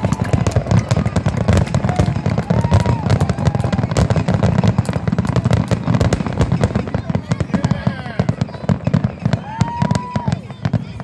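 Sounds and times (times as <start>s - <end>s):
fireworks bangs and crackles: 0.0s - 11.0s
firework whistles: 7.5s - 11.0s.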